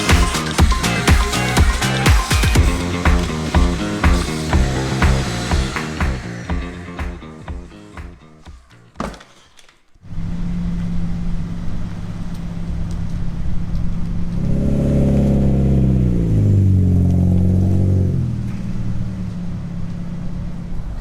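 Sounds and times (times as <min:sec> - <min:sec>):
car engine idling and revving: 0:00.0 - 0:08.2, 0:13.7 - 0:21.0.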